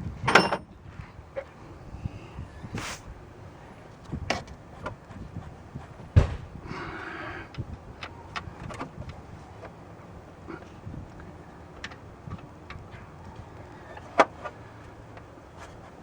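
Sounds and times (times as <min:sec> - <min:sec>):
sharp loud knock: 0:06.2 - 0:06.6.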